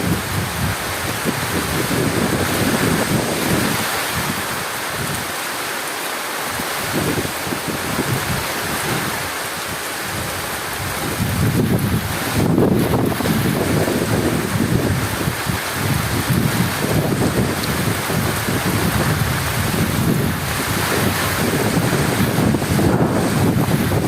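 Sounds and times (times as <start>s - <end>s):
heavy rain hissing: 0.0s - 24.0s
low rolling thunder: 10.1s - 24.0s.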